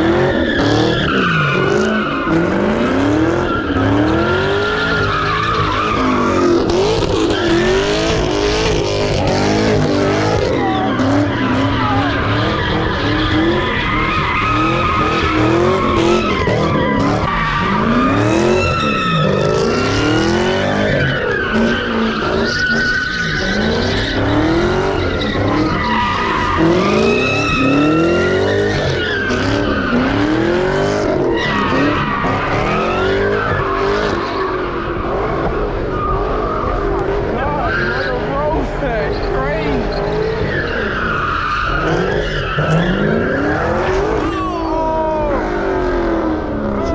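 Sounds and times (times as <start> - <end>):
tyres squealing: 0.0 - 30.6
car engine revving: 0.0 - 46.9.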